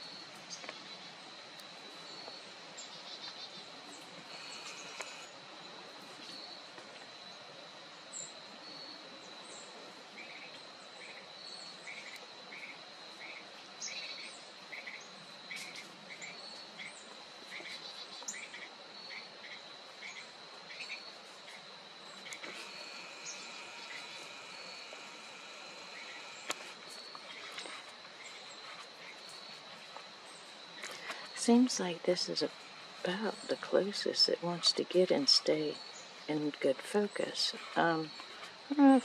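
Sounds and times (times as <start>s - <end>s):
high-pitched insect drone: 4.3s - 5.4s, 20.8s - 29.6s
bird chirping: 9.6s - 29.6s.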